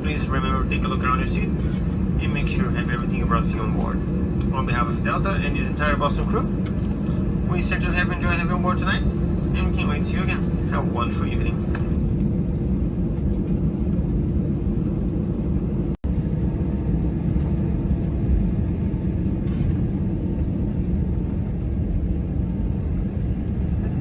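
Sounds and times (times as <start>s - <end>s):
jet engines rumbling in cabin: 0.0s - 24.0s.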